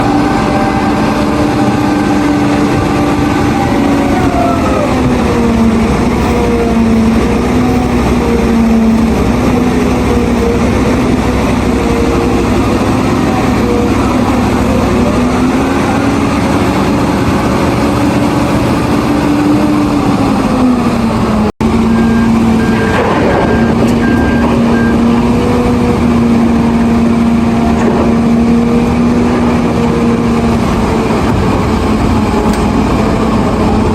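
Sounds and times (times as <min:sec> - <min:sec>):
diesel engine running under load: 0:00.0 - 0:33.9
reversing alarm beeping: 0:21.7 - 0:25.2.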